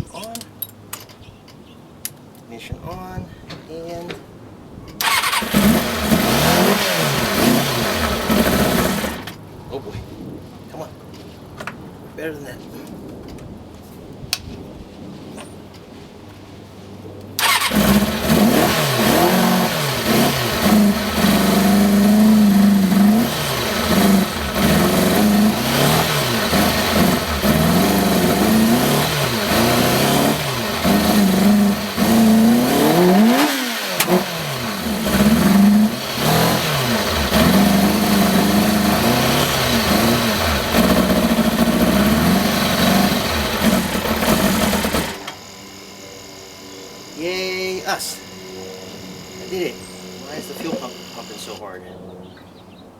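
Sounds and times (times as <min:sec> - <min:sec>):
motorcycle engine revving: 0:05.0 - 0:09.4, 0:17.4 - 0:51.6.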